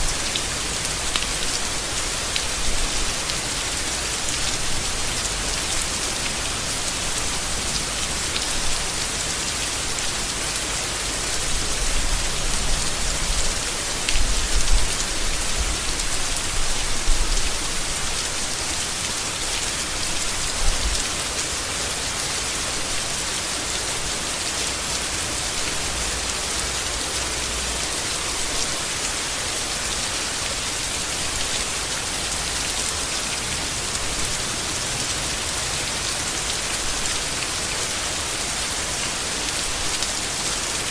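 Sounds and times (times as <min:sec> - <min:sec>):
heavy rain on leaves: 0:00.0 - 0:40.9.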